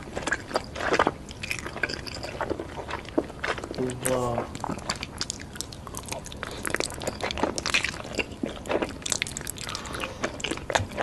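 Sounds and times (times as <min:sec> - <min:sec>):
person chewing: 0:04.6 - 0:10.6.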